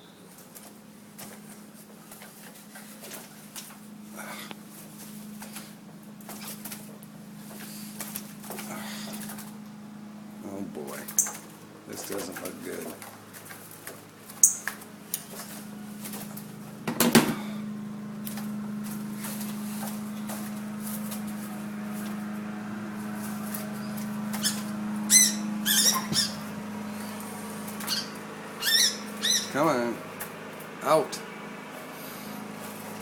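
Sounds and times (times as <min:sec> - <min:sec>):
steady low hum: 0:00.0 - 0:33.0
bird chirping: 0:11.0 - 0:11.5, 0:14.4 - 0:14.7, 0:23.7 - 0:27.2, 0:27.8 - 0:29.6.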